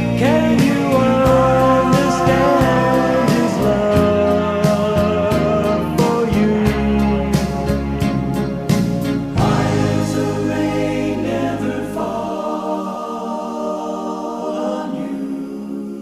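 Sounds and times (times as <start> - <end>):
choir-like vocal chords: 0.0 - 7.7, 9.2 - 16.0
band playing: 0.0 - 12.7
bass: 0.0 - 14.0.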